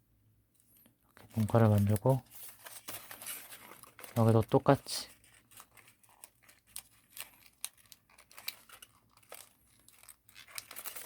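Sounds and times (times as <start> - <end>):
paper crinkling as folded: 1.0 - 11.0.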